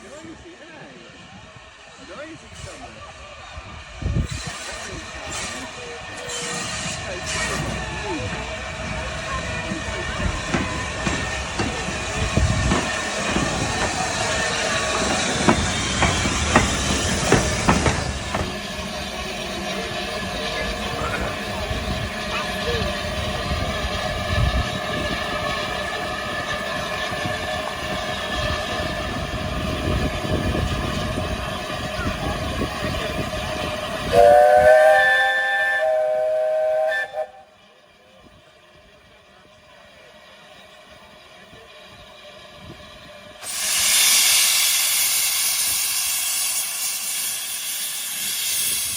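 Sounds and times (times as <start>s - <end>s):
steam hissing: 2.0s - 37.4s, 40.0s - 48.9s
train wheels clicking over rail joints: 4.2s - 34.3s, 38.3s - 48.9s
steam locomotive whistle: 34.1s - 37.6s.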